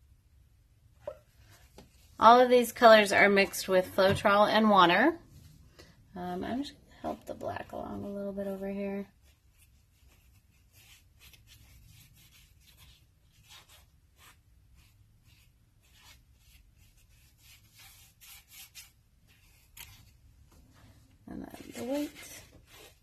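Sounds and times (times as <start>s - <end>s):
faint scratchy rubbing: 20.7s - 23.0s.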